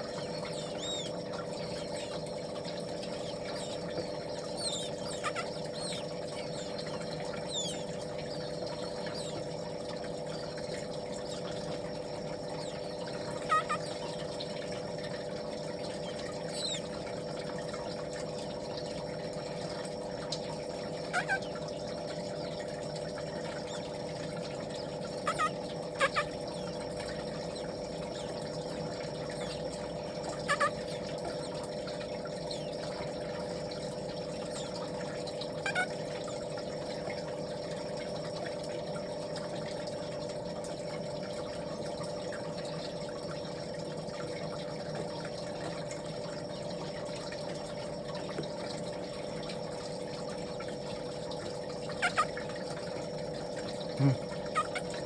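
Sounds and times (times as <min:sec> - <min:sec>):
baby birds peeping: 0:00.0 - 0:09.6, 0:12.4 - 0:14.2, 0:16.0 - 0:17.0, 0:21.1 - 0:21.6, 0:24.8 - 0:27.2, 0:28.0 - 0:31.6, 0:35.7 - 0:35.9, 0:51.9 - 0:52.3
machine hum: 0:00.0 - 0:38.1.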